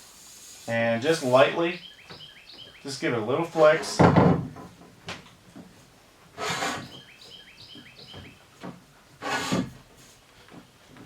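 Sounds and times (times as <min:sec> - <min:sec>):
short scraping rubs: 0:00.0 - 0:01.7, 0:06.4 - 0:07.0, 0:09.2 - 0:10.2
small bird chirping: 0:01.4 - 0:02.9, 0:06.8 - 0:08.4.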